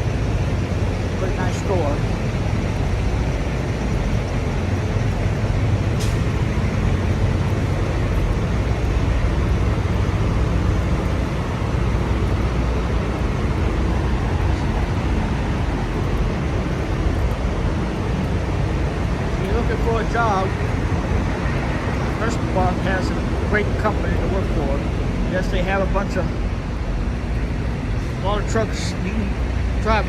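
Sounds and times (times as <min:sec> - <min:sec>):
diesel trucks idling: 0:00.0 - 0:30.0.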